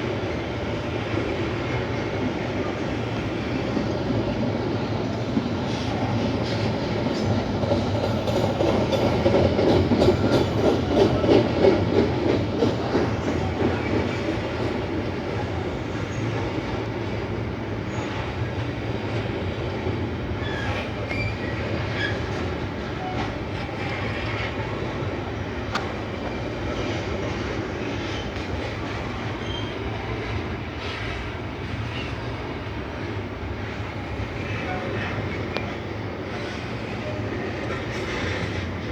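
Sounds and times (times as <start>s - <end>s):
train wheels clattering: 5.3s - 17.4s, 33.1s - 38.9s.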